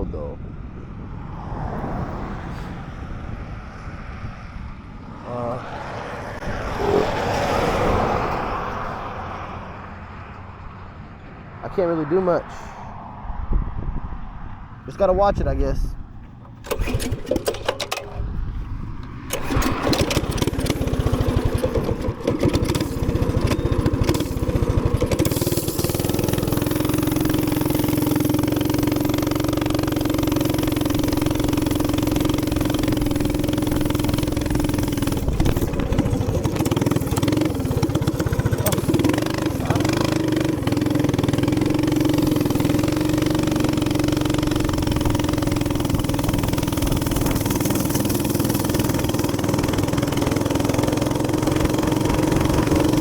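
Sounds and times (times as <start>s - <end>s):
small gas engine running: 5.2s - 9.8s, 16.3s - 53.0s.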